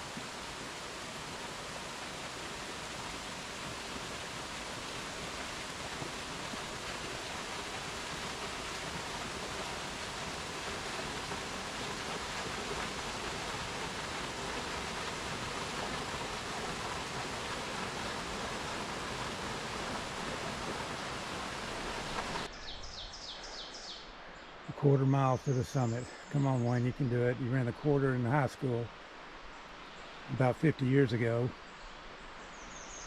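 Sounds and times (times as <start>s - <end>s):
waterfall rushing: 0.0s - 22.5s.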